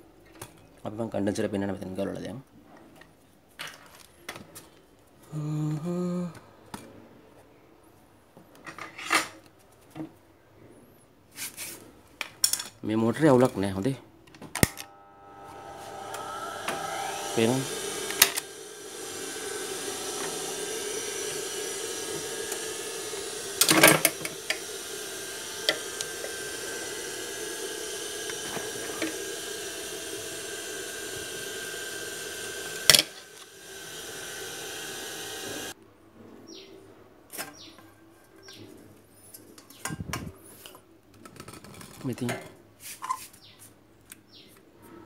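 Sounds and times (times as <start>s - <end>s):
sewing machine motor humming: 14.7s - 35.8s.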